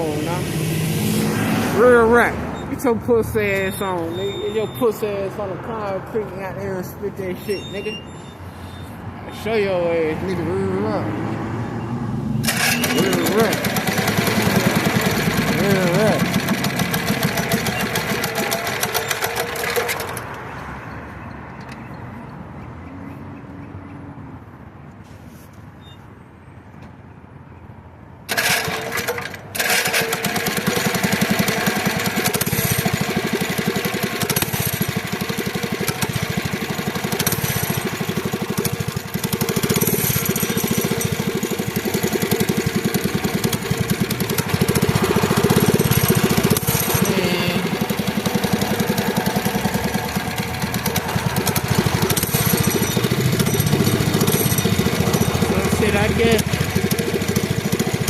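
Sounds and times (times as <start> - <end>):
small engine running: 12.4 - 20.4, 28.3 - 58.0.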